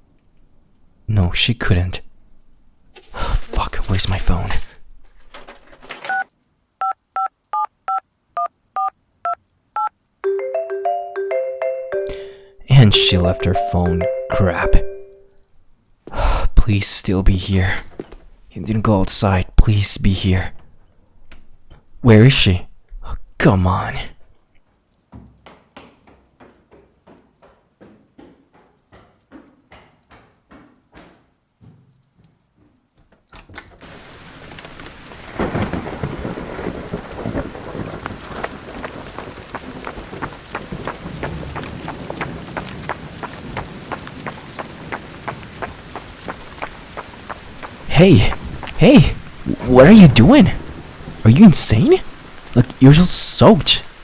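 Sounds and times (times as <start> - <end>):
touch-tone beeps: 9.8 - 15.3
marimba-like phone ringtone: 10.2 - 15.3
hurried footsteps: 38.0 - 51.0.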